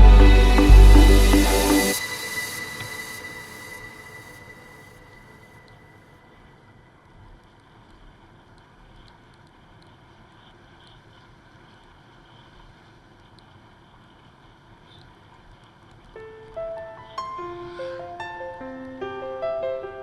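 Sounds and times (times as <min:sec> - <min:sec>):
low rumble: 0:00.0 - 0:02.0.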